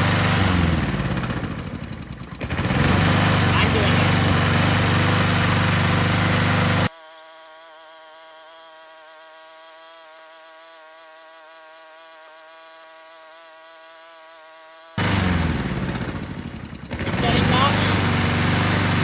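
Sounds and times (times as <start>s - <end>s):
lawnmower engine running: 0.0s - 19.0s
thin buzzing drone: 3.1s - 18.2s.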